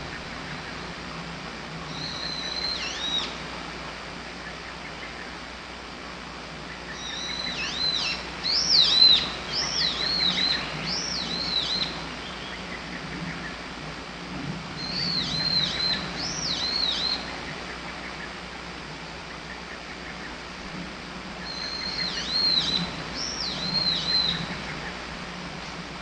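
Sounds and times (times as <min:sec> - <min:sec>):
bird singing whistled notes: 0:01.9 - 0:03.4, 0:06.7 - 0:13.5, 0:14.8 - 0:17.3, 0:21.4 - 0:24.8.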